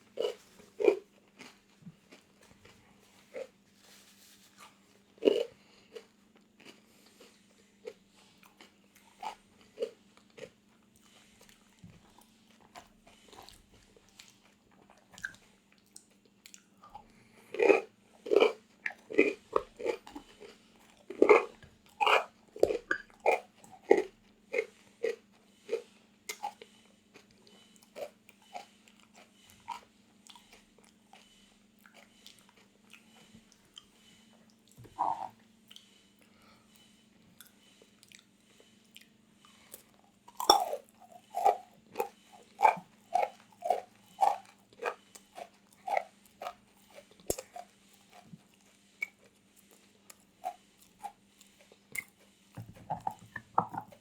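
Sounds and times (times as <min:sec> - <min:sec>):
crunchy food chewing: 0:00.0 - 0:54.0.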